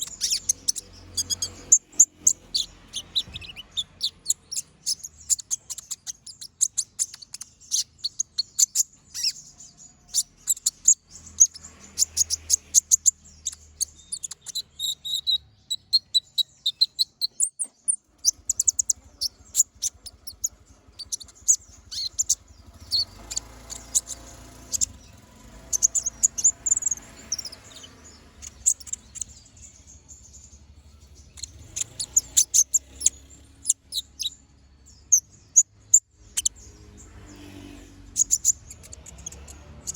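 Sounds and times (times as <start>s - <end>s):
bird singing high chirps: 0.0s - 39.9s.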